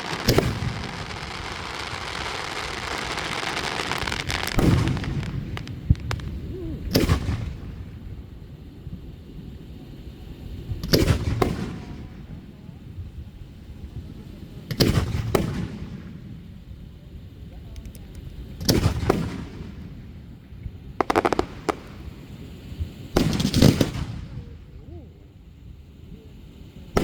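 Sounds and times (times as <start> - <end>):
sharp crackling pops: 0.0 - 7.6, 21.0 - 24.2
fireworks shells bursting: 0.0 - 7.8, 21.0 - 24.2.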